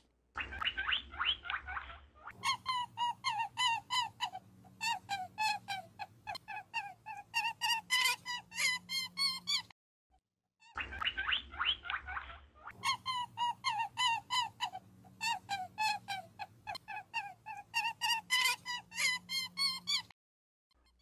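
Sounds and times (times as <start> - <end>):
bird calling: 0.4 - 9.7.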